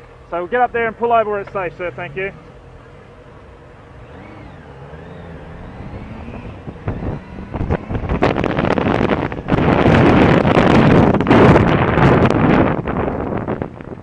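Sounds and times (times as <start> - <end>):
motorcycle engine accelerating: 0.8 - 14.0
wind buffeting microphone: 4.0 - 14.0.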